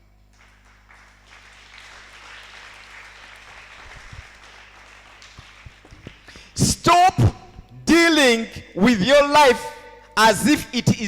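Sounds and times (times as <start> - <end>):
congregation applauding: 0.3 - 6.7.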